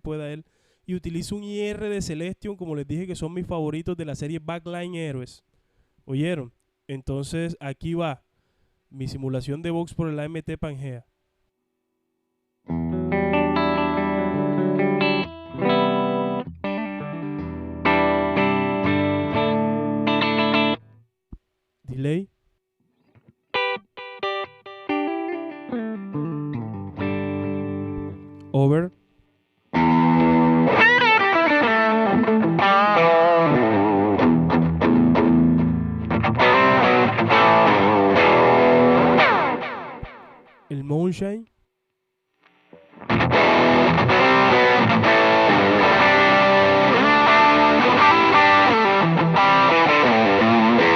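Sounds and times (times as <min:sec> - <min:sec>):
electric guitar ringing chords: 0:12.6 - 0:20.9, 0:23.6 - 0:28.3, 0:29.8 - 0:40.5, 0:42.9 - 0:50.9.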